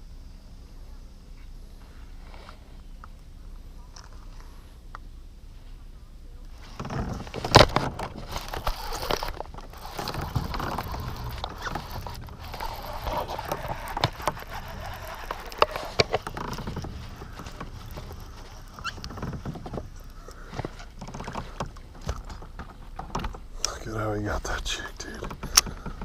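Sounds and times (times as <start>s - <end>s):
rustling: 6.5s - 24.0s
knocks and clicks aboard kayak: 6.7s - 26.0s.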